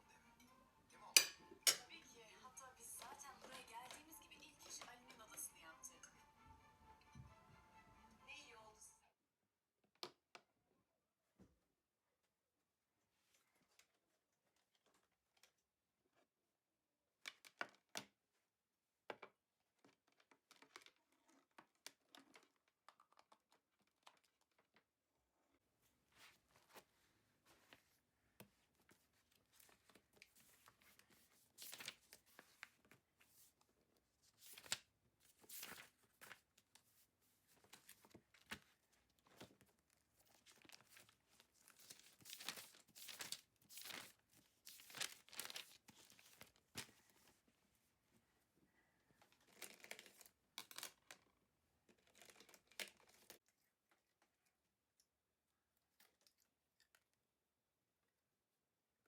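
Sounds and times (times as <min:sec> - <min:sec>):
crinkling and tearing rustles: 0:34.2 - 0:47.3.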